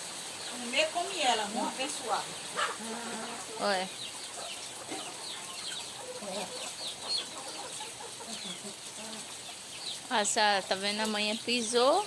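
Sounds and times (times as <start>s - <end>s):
chicks peeping: 0.3s - 12.0s
chickens clucking softly: 2.4s - 10.1s.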